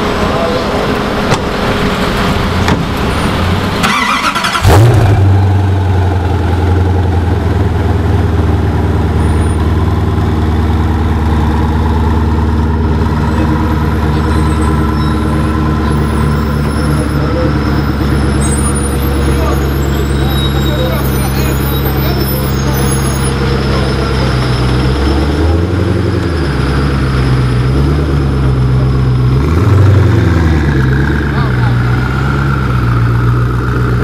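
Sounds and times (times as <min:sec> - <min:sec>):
engine cranking: 0:03.0 - 0:05.2
engine starting and idling: 0:03.3 - 0:05.4.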